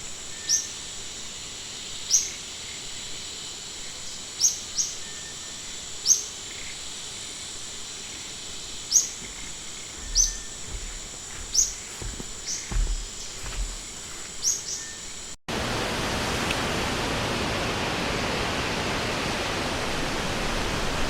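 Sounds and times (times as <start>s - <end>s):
insects droning: 0.0s - 16.2s
background hiss: 0.0s - 21.0s
bird chirping: 4.1s - 6.8s, 8.0s - 15.3s.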